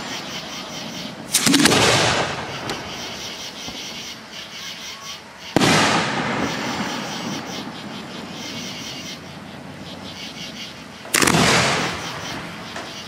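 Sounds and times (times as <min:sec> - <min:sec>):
firework rumble: 0:00.0 - 0:04.3, 0:05.2 - 0:13.0
night insects chirping: 0:00.0 - 0:13.0
firework shell bursting: 0:01.2 - 0:03.9, 0:05.5 - 0:07.7, 0:11.1 - 0:13.0.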